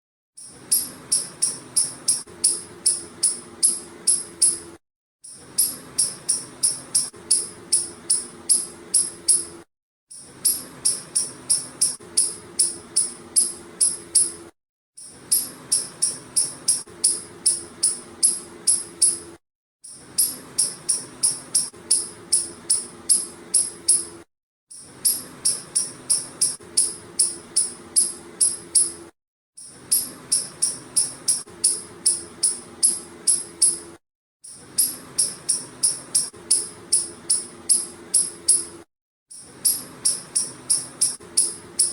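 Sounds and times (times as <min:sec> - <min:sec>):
squirrel chirping calls: 0:00.7 - 0:04.6, 0:05.6 - 0:09.4, 0:15.3 - 0:19.2, 0:29.9 - 0:33.7, 0:39.6 - 0:41.9.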